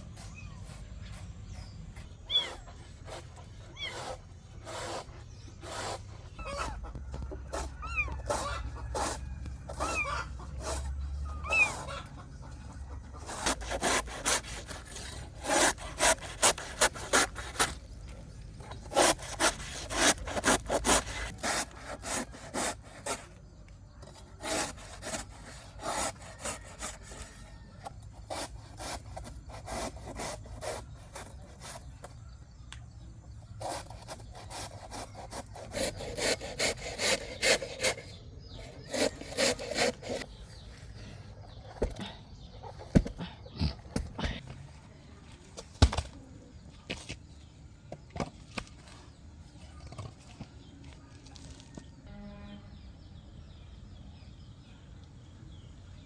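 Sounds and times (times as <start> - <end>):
rasping strokes: 0.0 - 32.1, 33.4 - 40.8.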